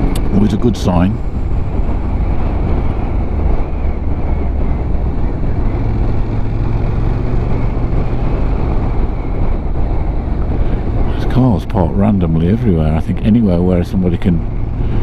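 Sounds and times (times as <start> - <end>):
motorcycle engine hum: 0.0 - 15.0
wind and road noise: 0.0 - 15.0.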